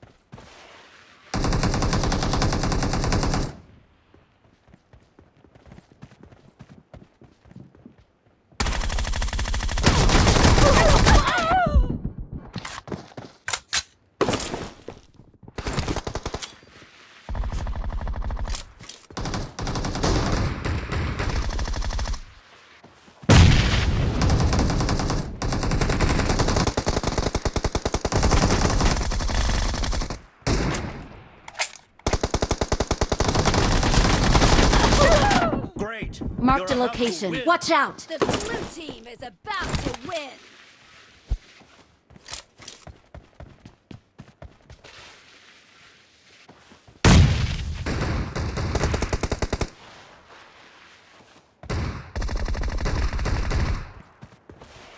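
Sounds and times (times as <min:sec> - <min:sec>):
video game automatic gunfire: 0:01.3 - 0:03.6, 0:19.2 - 0:22.2, 0:24.2 - 0:30.6, 0:32.0 - 0:35.2, 0:51.7 - 0:54.0.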